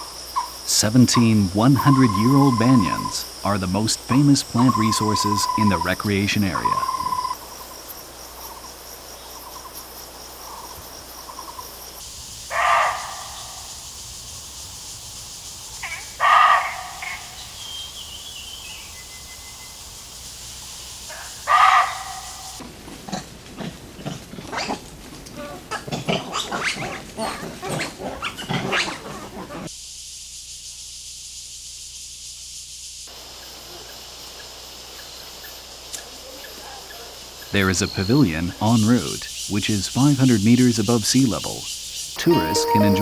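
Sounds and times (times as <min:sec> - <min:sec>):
rapid irregular animal calls: 0:00.0 - 0:29.7, 0:33.1 - 0:43.0
high insect hiss: 0:00.0 - 0:43.0
loud wild animal call: 0:00.4 - 0:07.5, 0:12.5 - 0:13.9, 0:15.8 - 0:17.9, 0:21.1 - 0:29.7.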